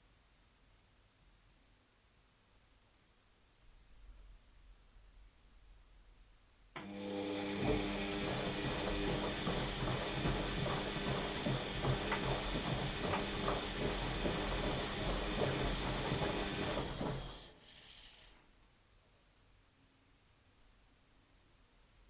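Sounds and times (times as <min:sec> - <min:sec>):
washing machine drum turning: 0:06.8 - 0:17.5.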